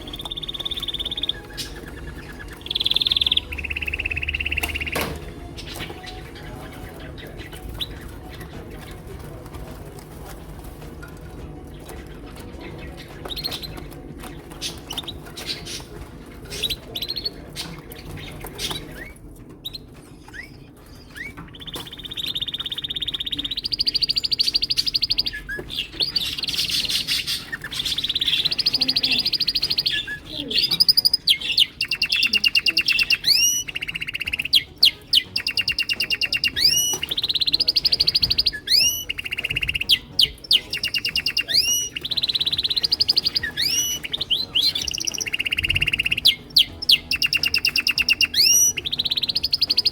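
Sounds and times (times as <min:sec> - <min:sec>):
rising sweeping bird notes: 0:00.0 - 0:06.4, 0:31.2 - 0:49.9
canaries singing trills: 0:00.0 - 0:49.9.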